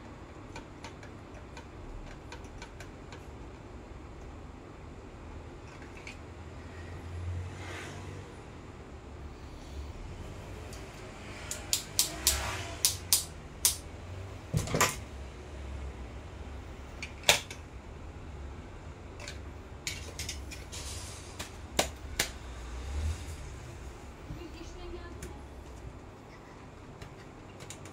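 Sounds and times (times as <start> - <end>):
clicks and knocks of tools: 10.7 - 13.8, 19.2 - 20.7, 26.9 - 27.9.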